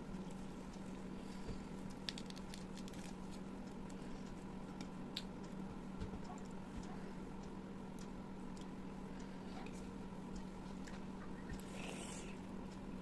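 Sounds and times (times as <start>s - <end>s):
steady low hum: 0.0s - 13.0s
wet eating clicks and squishes: 1.8s - 5.5s.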